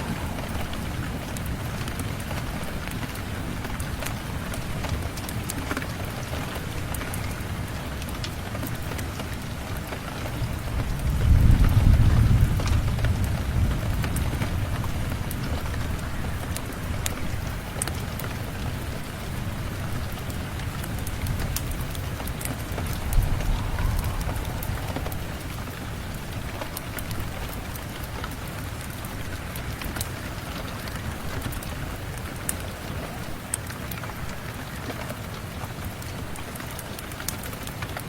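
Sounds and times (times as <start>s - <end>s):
low thunder rumble: 0.0s - 5.2s, 10.3s - 17.7s, 18.6s - 29.8s
steady rain falling: 0.0s - 38.0s.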